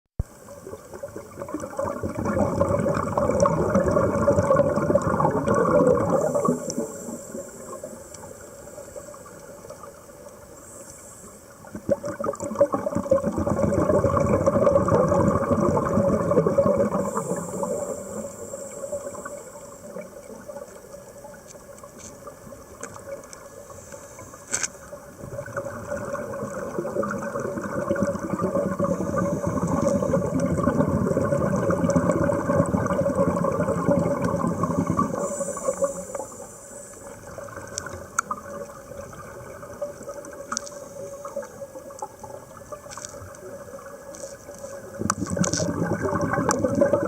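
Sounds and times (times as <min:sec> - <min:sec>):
bubbling exhalations underwater: 0:00.7 - 0:07.9, 0:11.7 - 0:18.3, 0:25.2 - 0:36.0, 0:44.8 - 0:47.0
hiss of inhalation: 0:06.2 - 0:09.2, 0:17.0 - 0:19.8, 0:35.0 - 0:37.2
click: 0:22.8 - 0:25.0, 0:37.7 - 0:38.4.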